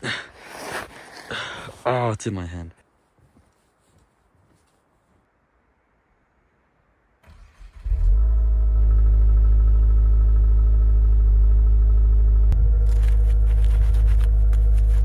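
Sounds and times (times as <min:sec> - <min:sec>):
car engine starting and idling: 0:07.2 - 0:15.0.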